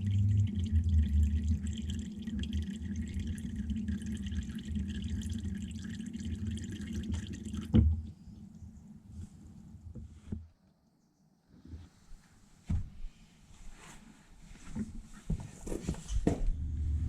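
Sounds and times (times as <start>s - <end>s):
oil draining into pan: 0.0s - 7.9s.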